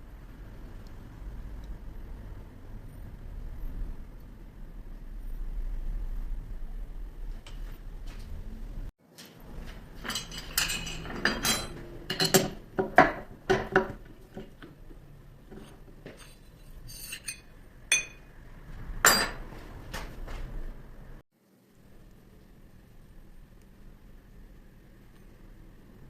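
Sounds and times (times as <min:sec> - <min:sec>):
metal tools clinking: 0:10.0 - 0:12.6, 0:15.6 - 0:18.2.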